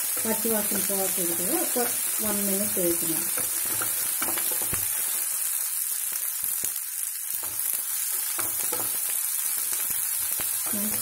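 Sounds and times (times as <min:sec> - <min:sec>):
onions sizzling in hot oil: 0:00.0 - 0:11.0
spatula scraping and knocking pan: 0:03.2 - 0:05.2, 0:07.4 - 0:11.0.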